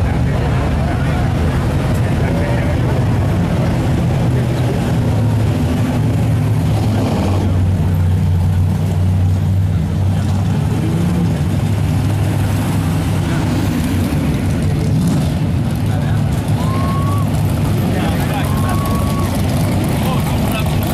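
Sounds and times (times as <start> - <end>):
car engine exhaust rumble: 0.0 - 20.9.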